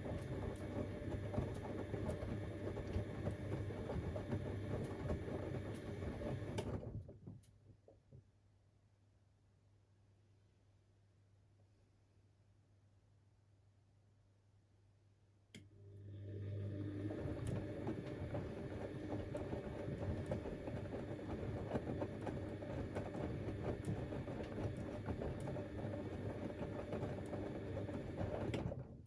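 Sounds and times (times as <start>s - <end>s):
washing machine motor running: 0.0s - 6.9s, 15.7s - 28.9s.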